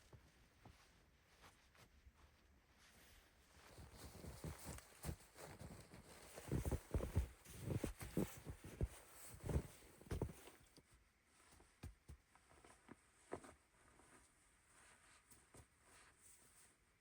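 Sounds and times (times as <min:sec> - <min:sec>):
soft thumps and crunches: 0:03.7 - 0:14.3.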